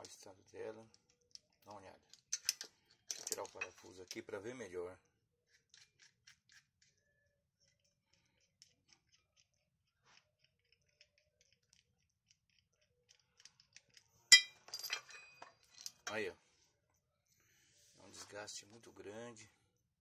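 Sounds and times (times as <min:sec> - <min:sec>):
hand tools clicking on metal: 0:00.0 - 0:04.2
sharp metallic clank: 0:14.3 - 0:15.1.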